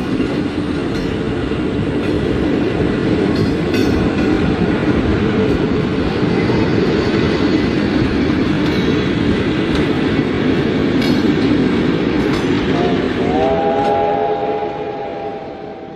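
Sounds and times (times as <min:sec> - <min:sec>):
steam locomotive rumbling and rattling: 0:00.0 - 0:15.9
steam whistle chord: 0:12.7 - 0:15.9.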